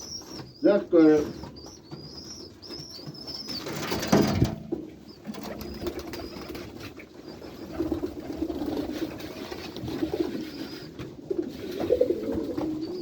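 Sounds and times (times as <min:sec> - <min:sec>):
pigeons chirping: 0:00.0 - 0:13.0
pigeons cooing: 0:00.0 - 0:13.0
wings flapping: 0:03.5 - 0:04.6, 0:05.3 - 0:07.0.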